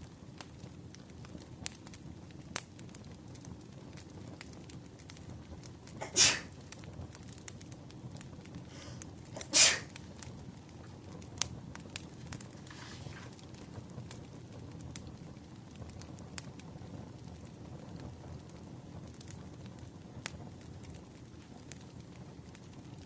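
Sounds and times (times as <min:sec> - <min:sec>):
firewood crackling and popping: 0:00.0 - 0:23.0
loud breathy bursts: 0:06.0 - 0:06.6, 0:08.7 - 0:10.0.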